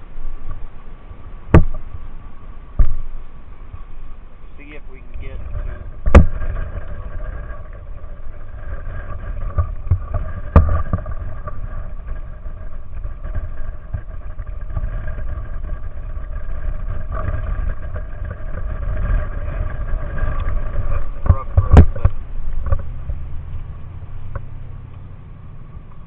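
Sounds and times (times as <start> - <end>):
heavy low rumble: 0.0 - 26.0.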